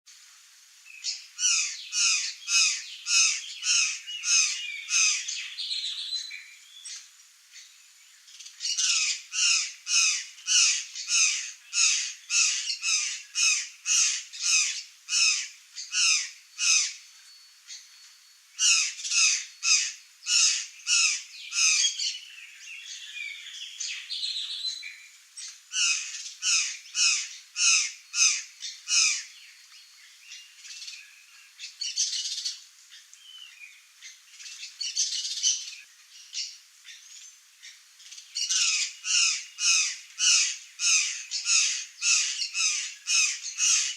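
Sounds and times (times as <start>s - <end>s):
jays harsh calls: 38.4s - 43.9s.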